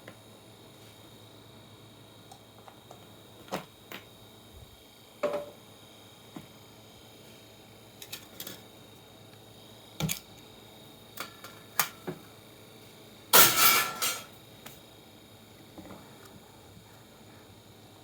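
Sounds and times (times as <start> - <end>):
clatter of ringing hits: 13.4 - 14.3.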